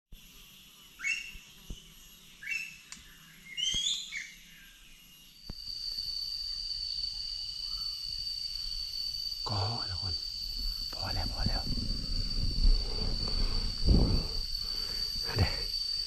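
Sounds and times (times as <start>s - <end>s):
birds chirping: 9.4s - 16.0s.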